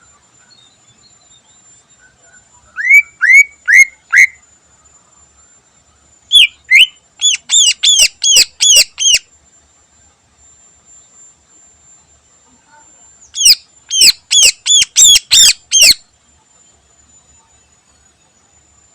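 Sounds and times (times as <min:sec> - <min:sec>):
bird whistling song: 0:00.4 - 0:04.4, 0:06.3 - 0:09.3, 0:13.2 - 0:16.1.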